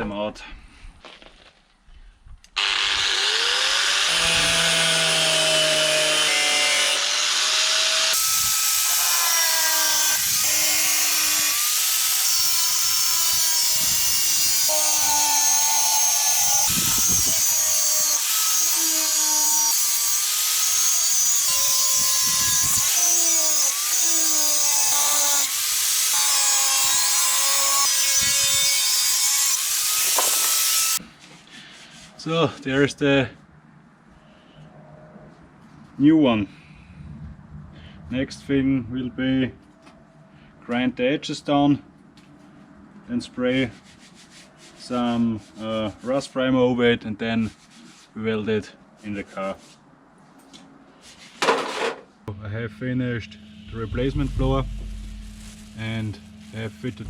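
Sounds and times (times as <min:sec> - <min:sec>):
power tool cutting sheet steel: 0:02.6 - 0:31.0.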